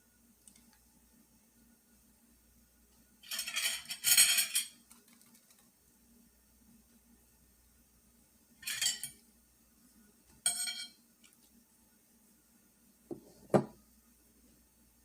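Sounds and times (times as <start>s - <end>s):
dishes clinking: 3.2s - 4.8s, 8.6s - 9.2s, 10.4s - 11.0s
dull knocks of dishes: 13.1s - 13.8s.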